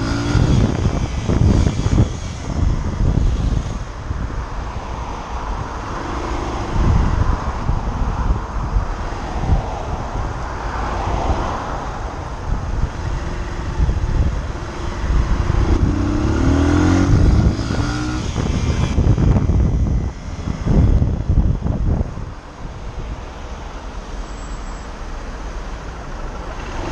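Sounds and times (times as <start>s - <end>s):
motorcycle engine revving up: 0.0s - 2.5s, 14.7s - 19.4s
wind buffeting microphone: 0.0s - 23.4s
traffic: 0.0s - 26.9s.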